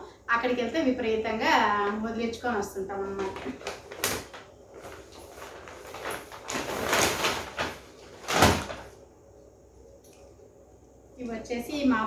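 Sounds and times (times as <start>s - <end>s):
shopping bag rustling: 3.0s - 9.0s.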